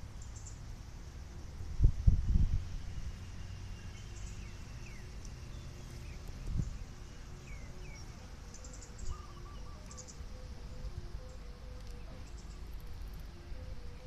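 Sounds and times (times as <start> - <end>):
kite hummer droning: 0.0 - 14.0
wind rumble: 0.0 - 14.0
bird chirps: 3.7 - 14.0
insect ticks: 5.1 - 6.6.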